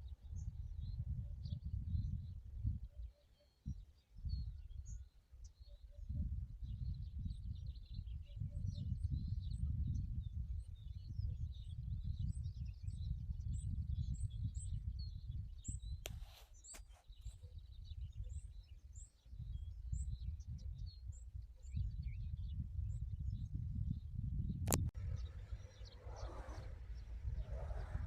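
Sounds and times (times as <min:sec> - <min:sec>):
small birds chirping: 0:00.0 - 0:24.0, 0:24.7 - 0:28.0
gusty low rumble: 0:21.8 - 0:28.0.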